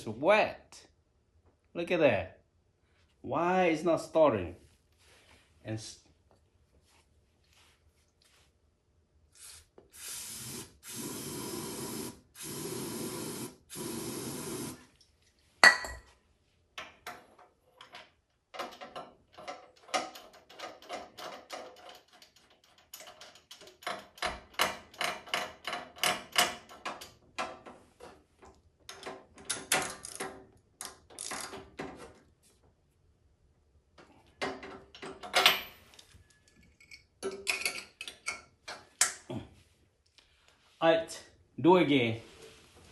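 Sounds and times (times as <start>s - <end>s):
aerosol spray can hissing: 9.4s - 14.8s.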